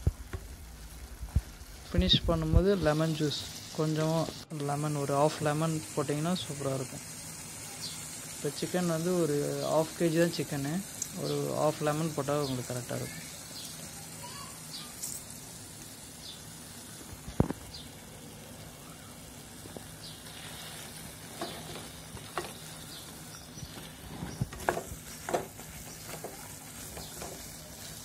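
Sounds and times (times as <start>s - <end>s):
food sizzling in a pan: 0.0s - 28.0s
spatula knocking and scraping pan: 21.2s - 22.7s, 23.7s - 27.6s.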